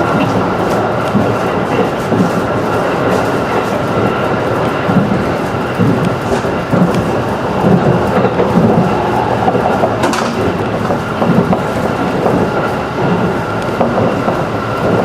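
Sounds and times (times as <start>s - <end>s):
train wheels rumbling on rails: 0.0s - 15.0s
faint steady whine: 4.0s - 12.9s.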